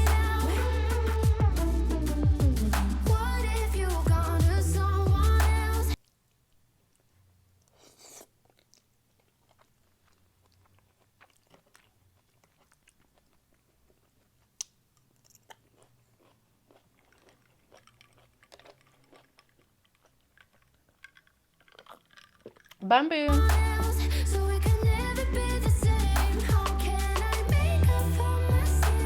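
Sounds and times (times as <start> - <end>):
person chewing: 6.0 - 22.8
eating clicks: 6.0 - 22.9.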